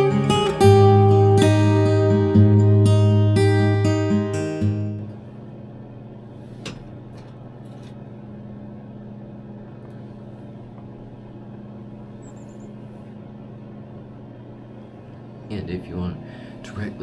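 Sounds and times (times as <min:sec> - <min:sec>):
acoustic guitar music: 0:00.0 - 0:05.3
steady low hum: 0:00.0 - 0:17.0.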